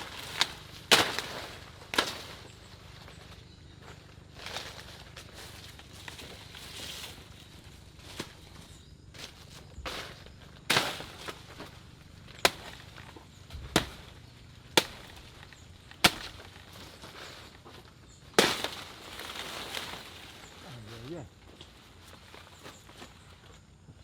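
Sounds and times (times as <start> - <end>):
chopping strikes: 0.1 - 2.4, 9.9 - 16.5, 18.4 - 18.9.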